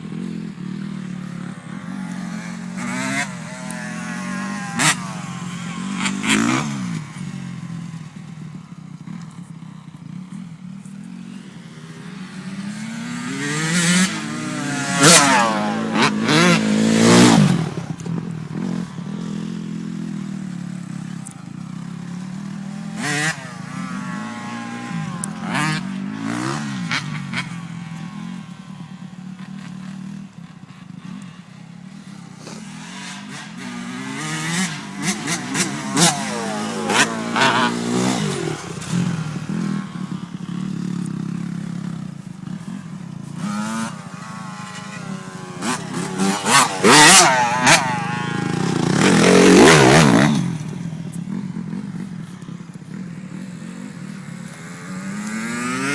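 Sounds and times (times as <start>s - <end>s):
dirt bike engines revving: 0.0s - 55.9s.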